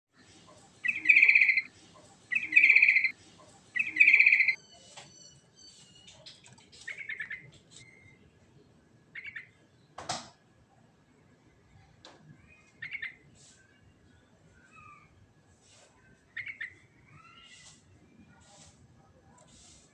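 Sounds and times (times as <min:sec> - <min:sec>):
bird singing bubbly phrases: 0:00.8 - 0:01.7, 0:02.3 - 0:03.1, 0:03.8 - 0:04.6
bird chirps and whistles: 0:00.9 - 0:01.7, 0:02.3 - 0:03.1, 0:03.8 - 0:04.6.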